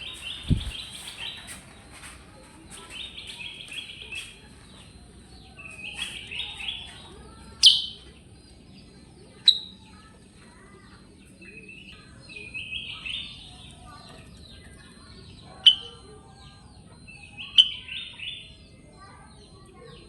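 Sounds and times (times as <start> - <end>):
songbird rapid chirping song: 0.0 - 20.0
sharp loud bird calls: 7.6 - 8.1.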